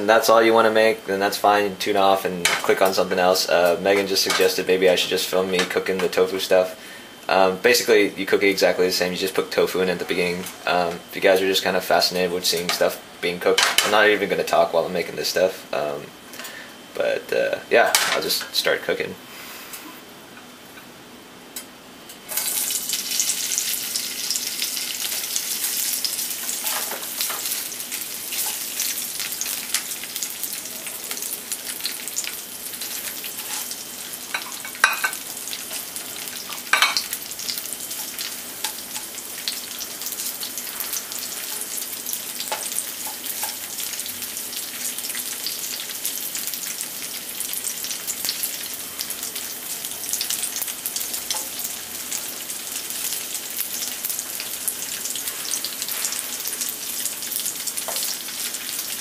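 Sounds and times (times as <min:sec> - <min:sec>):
tofu sizzling in hot oil: 0:22.2 - 0:59.0.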